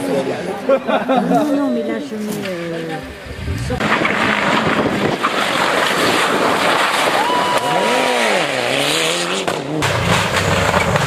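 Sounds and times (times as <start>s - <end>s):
car rushing on road: 3.2s - 11.0s
rally car engine at speed: 3.7s - 11.0s.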